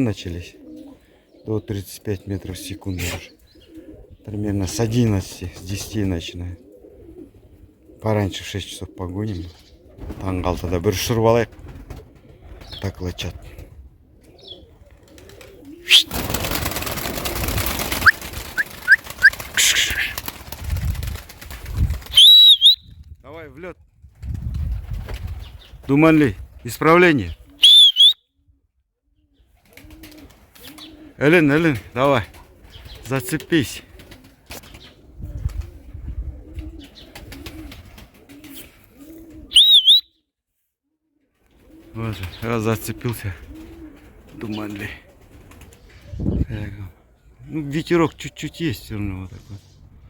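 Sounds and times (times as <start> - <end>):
pigeons cooing: 0.0 - 20.6, 27.3 - 40.0, 41.0 - 47.7
high warbling whistle: 15.9 - 16.1, 22.2 - 22.8, 27.6 - 28.2, 39.6 - 40.1
short rising chirps: 15.9 - 16.1, 39.6 - 40.1
wind rumble: 20.5 - 22.2, 23.9 - 25.8.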